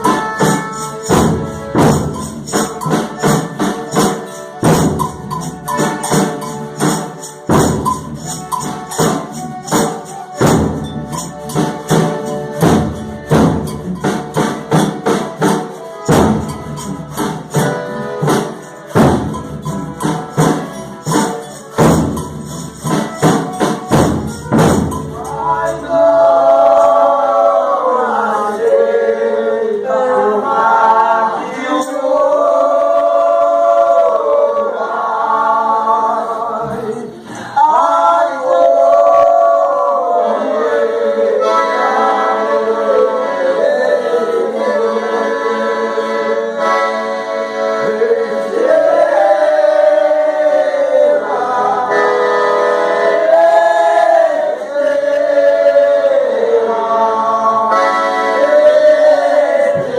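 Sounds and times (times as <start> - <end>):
tambourine: 0.0 - 26.0
rhythmic instrumental strokes: 0.0 - 59.9
voices singing in harmony: 0.0 - 59.9.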